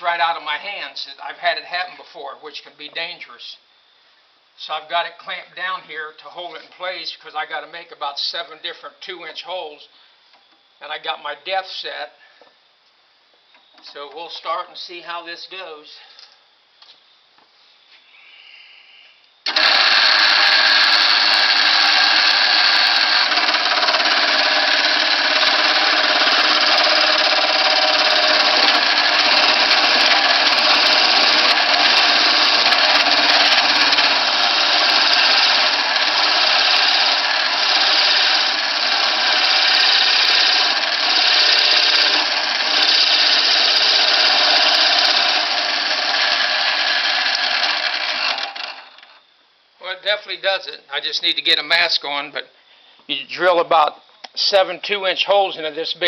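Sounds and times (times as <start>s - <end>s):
electric drill boring into wood: 19.5s - 49.2s.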